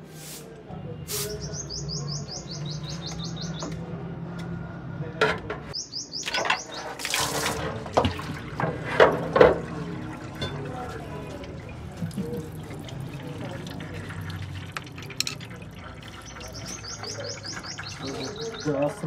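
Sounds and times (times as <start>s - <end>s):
oil splashing and dripping: 6.8s - 18.8s.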